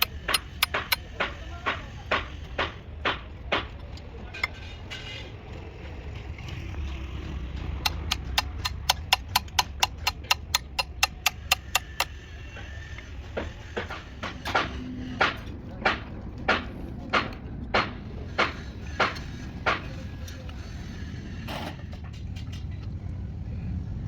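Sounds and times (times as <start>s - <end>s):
hammer tapping: 0.0s - 3.7s, 7.6s - 12.7s.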